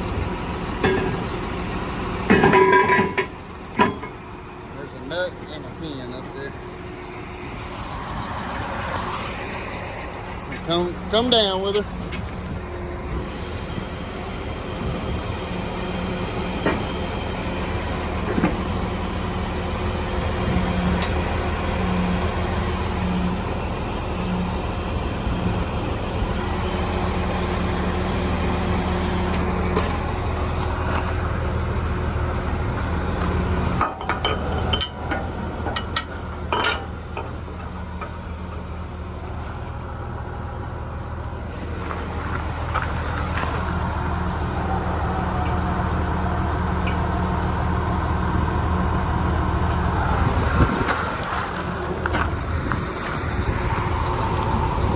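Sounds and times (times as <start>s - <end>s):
diesel engine idling: 0.0s - 54.9s
metallic clanks and clinks: 33.8s - 37.4s.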